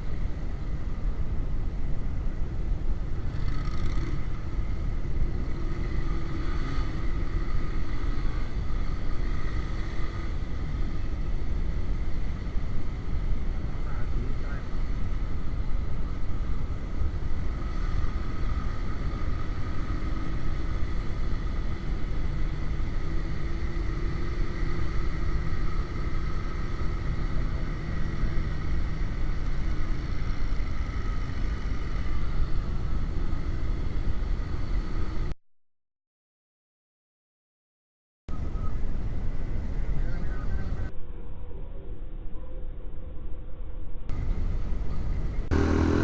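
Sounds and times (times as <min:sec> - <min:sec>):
motorcycle engine drone: 0:00.0 - 0:35.3, 0:44.1 - 0:46.0.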